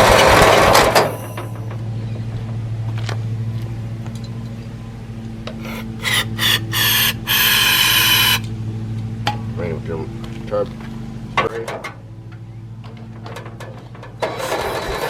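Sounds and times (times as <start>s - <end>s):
garden tractor engine running: 0.0s - 11.4s, 12.0s - 15.0s
harsh rasping bursts: 5.6s - 8.5s.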